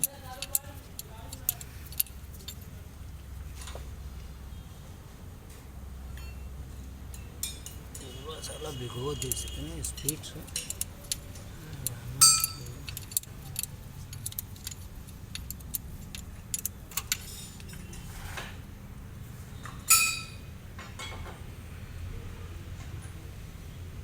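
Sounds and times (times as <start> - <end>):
metal tools clicking and clinking: 7.1 - 8.2, 9.2 - 11.5, 12.2 - 18.5, 19.6 - 21.4
loud ringing metallic clinks: 7.1 - 10.8, 12.2 - 13.0, 19.6 - 21.2.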